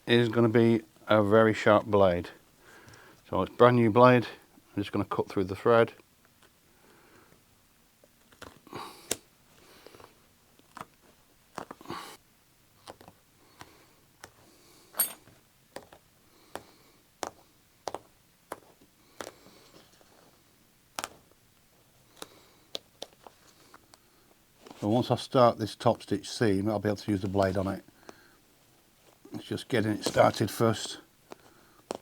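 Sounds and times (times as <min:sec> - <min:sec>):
fabric being handled: 0:28.6 - 0:32.0.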